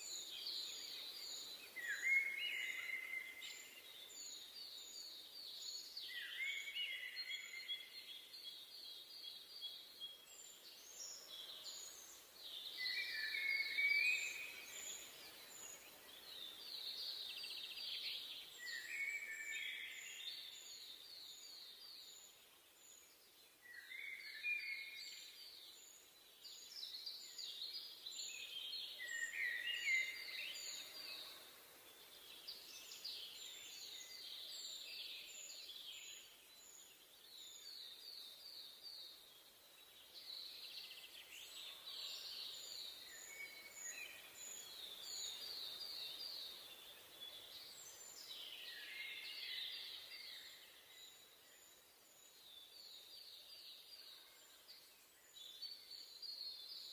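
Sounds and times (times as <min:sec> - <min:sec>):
faint hiss: 0:00.0 - 0:56.9
songbird trills: 0:00.0 - 0:56.9.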